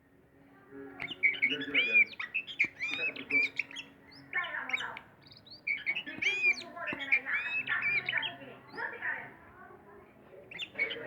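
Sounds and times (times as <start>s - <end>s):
bird singing whistled notes: 1.0s - 8.8s, 10.5s - 11.0s.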